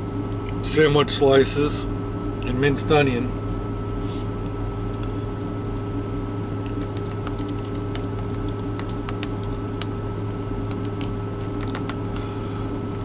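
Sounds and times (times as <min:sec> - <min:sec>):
low hum with high tone: 0:00.0 - 0:13.0
clicks of food being mixed: 0:04.9 - 0:13.0.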